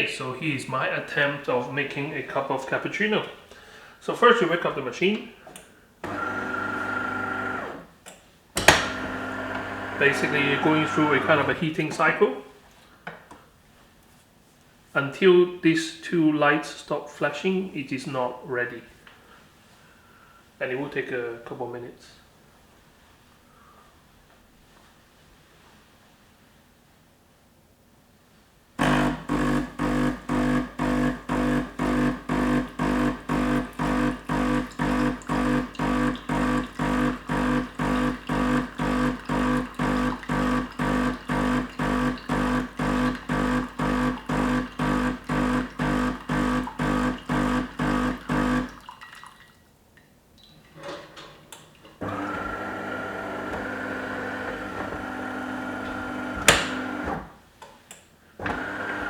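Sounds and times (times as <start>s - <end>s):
coffee machine humming in pulses: 6.0s - 7.9s, 8.6s - 11.7s, 28.8s - 48.9s, 52.0s - 57.3s, 58.4s - 59.0s
steady higher hum: 9.1s - 11.6s, 28.8s - 48.8s.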